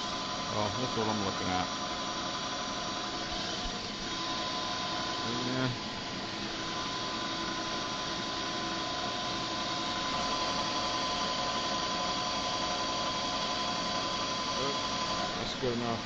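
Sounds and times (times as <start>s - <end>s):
machinery humming: 0.0s - 16.0s.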